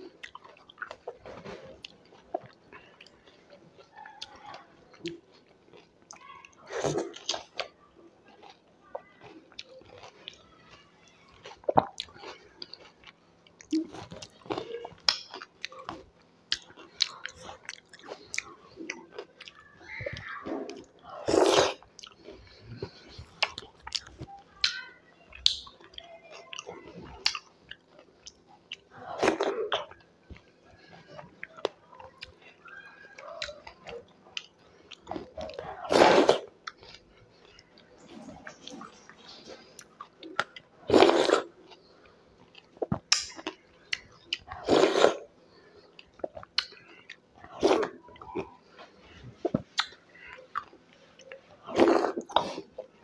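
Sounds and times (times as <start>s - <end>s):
chewing and wet mouth sounds: 0.0s - 53.0s
mouth smacks and clicks: 49.5s - 52.6s.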